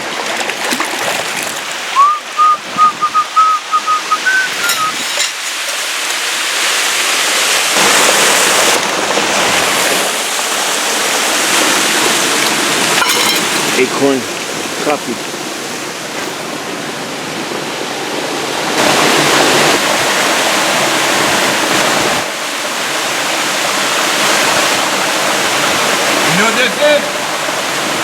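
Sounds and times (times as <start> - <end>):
rushing stream and waterfall: 0.0 - 28.0
whistled bird chirps: 2.0 - 5.0.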